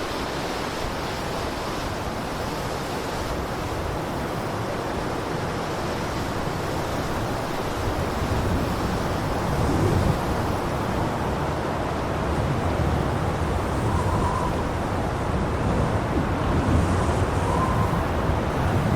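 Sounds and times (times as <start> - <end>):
blizzard wind blowing: 6.3 - 18.9.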